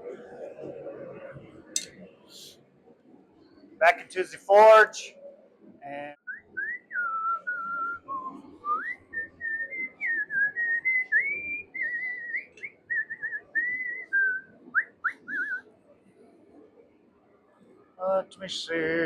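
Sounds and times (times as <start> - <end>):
man whistling a tune: 6.3 - 15.6.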